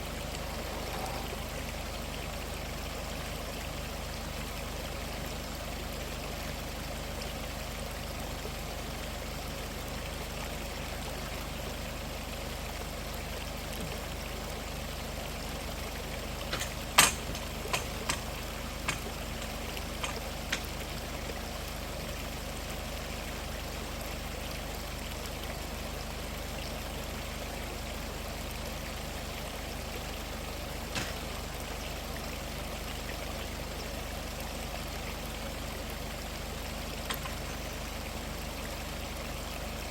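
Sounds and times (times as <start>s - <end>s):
stream running: 0.0s - 39.9s
sharp clicks or knocks: 16.5s - 18.3s.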